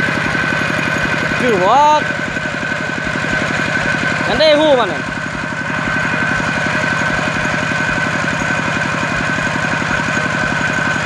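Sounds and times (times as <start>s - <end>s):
small engine chugging: 0.0s - 11.0s
steady high whine: 4.2s - 11.0s.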